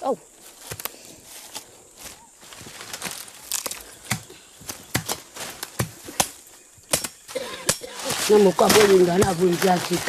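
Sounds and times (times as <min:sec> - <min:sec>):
hand tool chopping soil: 0:03.0 - 0:10.0.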